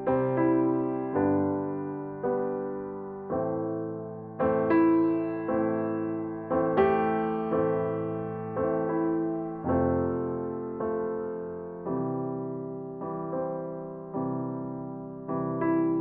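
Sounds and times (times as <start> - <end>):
slow solo piano chords: 0.0 - 16.0.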